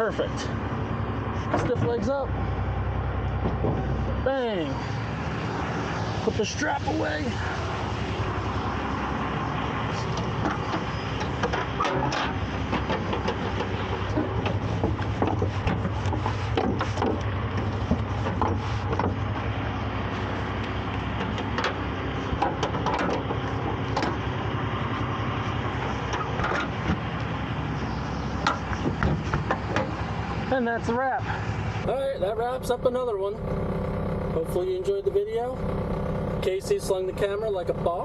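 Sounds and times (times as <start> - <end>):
truck engine running: 0.0 - 38.0
clanks and knocks of gear: 10.1 - 19.4, 20.6 - 24.3, 25.8 - 27.3.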